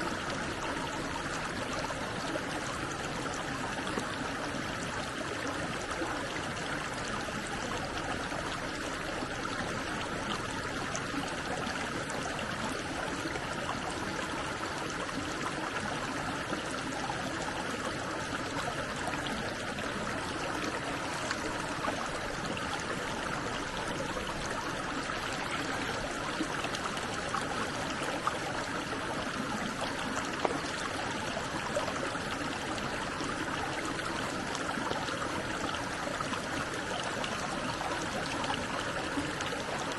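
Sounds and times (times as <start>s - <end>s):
stream water rushing: 9.4s - 39.9s.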